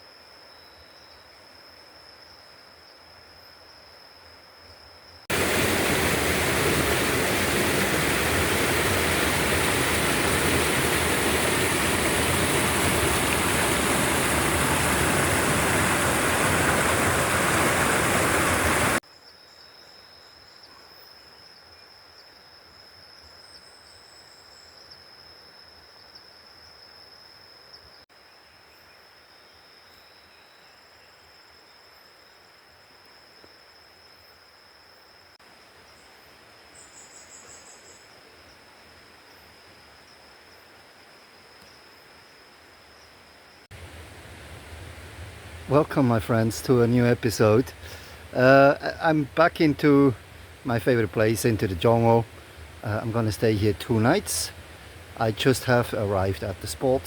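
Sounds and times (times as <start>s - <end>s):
high insect drone: 0.0s - 57.0s
jungle ambience: 0.0s - 57.0s
river water rushing: 5.3s - 19.0s, 43.7s - 57.0s.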